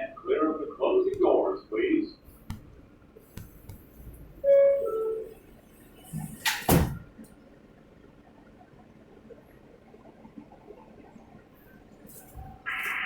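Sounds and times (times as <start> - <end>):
subway door chime two descending tones: 4.4 - 5.8
sliding doors banging shut: 6.1 - 7.2.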